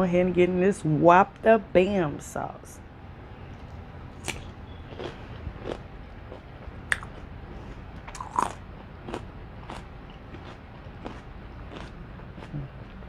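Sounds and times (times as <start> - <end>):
wet mouth smacks and crunches: 4.2 - 7.2, 8.0 - 9.8
person chewing food: 4.2 - 13.0.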